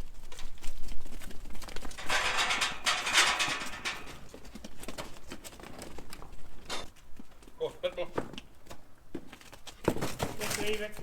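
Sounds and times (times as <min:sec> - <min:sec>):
sheep hooves pattering: 0:00.0 - 0:11.0
rustling: 0:00.2 - 0:07.5.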